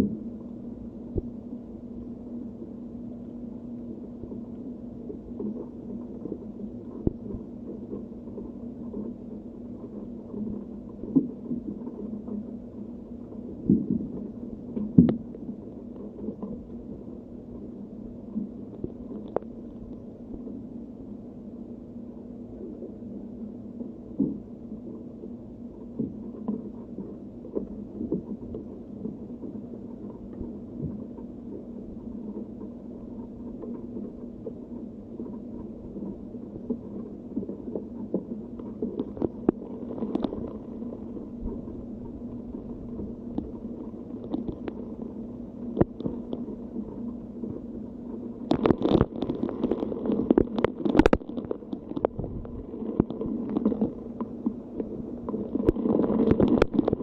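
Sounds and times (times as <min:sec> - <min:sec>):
crackles: 0:00.0 - 0:57.0
rain: 0:39.0 - 0:40.8, 0:48.1 - 0:57.0
wind on microphone: 0:52.0 - 0:53.2.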